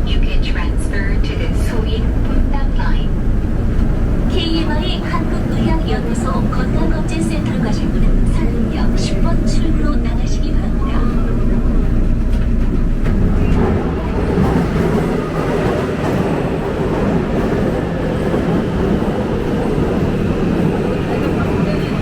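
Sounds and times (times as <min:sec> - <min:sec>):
subway train on rails: 0:00.0 - 0:22.0.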